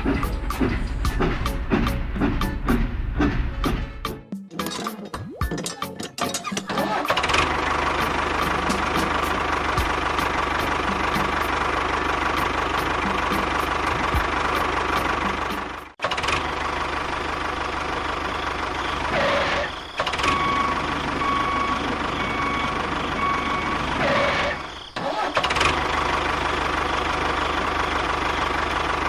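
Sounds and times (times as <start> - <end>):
repeating beep: 5.0 - 6.1
small engine running: 6.4 - 29.0.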